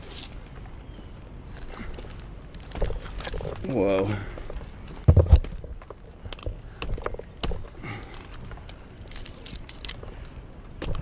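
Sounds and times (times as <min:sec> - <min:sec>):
metal hardware clinking: 0:08.2 - 0:10.0.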